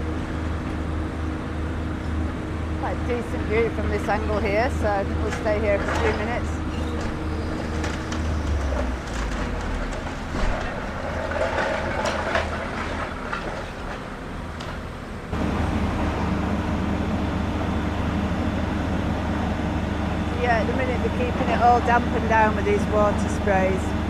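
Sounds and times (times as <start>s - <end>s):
diesel machines running: 0.0s - 24.0s
breaking masonry clattering: 3.6s - 14.8s.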